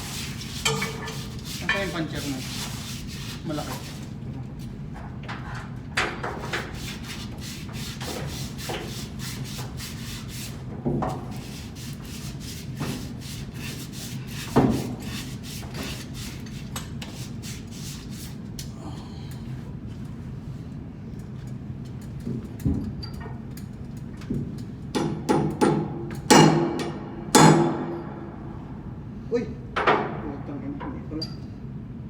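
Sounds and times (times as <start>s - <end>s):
quick rubbing on metal: 0.0s - 4.1s
steady low hum: 0.0s - 32.0s.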